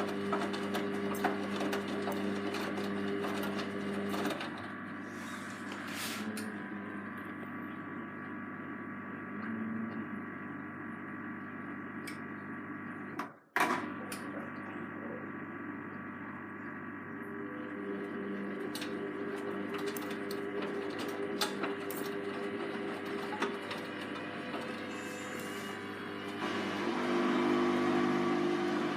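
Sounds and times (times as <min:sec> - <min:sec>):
washing machine motor hum: 0:00.0 - 0:28.9.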